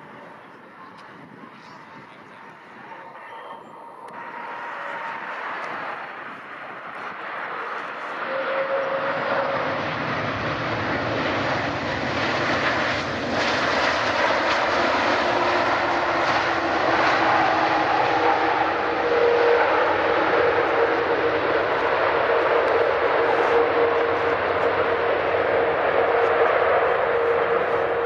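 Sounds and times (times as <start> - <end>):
faint whining tones: 0.0 - 9.8
jet engines roaring: 0.0 - 28.0.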